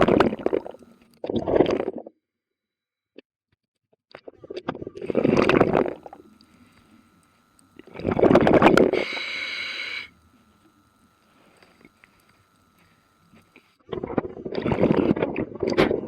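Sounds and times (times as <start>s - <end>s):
hissing regulator inhale: 0.0s - 1.0s, 5.0s - 13.8s
exhaled bubbles gurgling: 0.0s - 2.1s, 4.3s - 11.0s, 11.8s - 16.0s.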